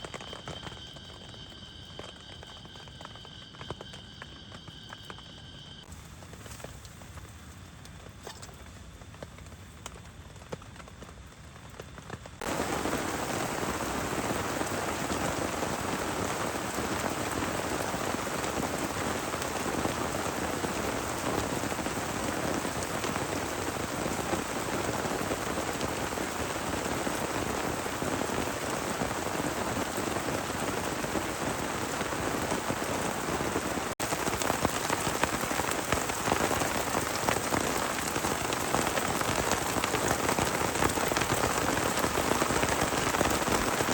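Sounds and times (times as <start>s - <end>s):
heavy rain patter: 9.1s - 43.9s.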